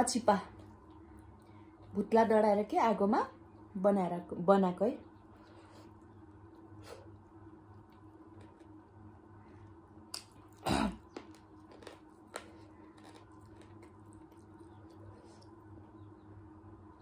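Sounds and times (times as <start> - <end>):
person chewing with wet mouth smacks: 10.1 - 15.6.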